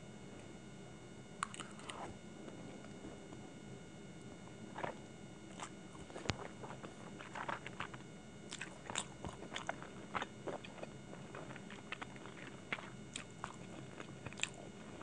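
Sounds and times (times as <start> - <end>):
chewing noodles: 1.4 - 2.1, 4.7 - 15.0.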